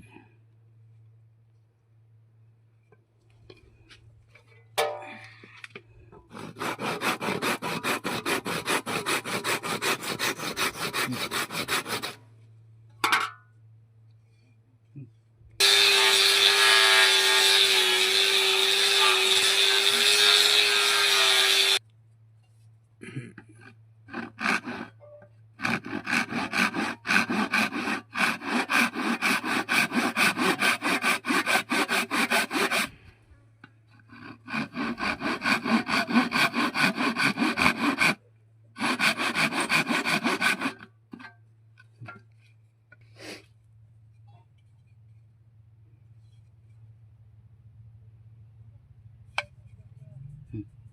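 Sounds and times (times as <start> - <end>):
wood being hand-sawn: 6.3 - 12.2, 15.6 - 21.8, 23.6 - 25.0, 25.6 - 33.0, 34.0 - 38.2, 38.8 - 40.9.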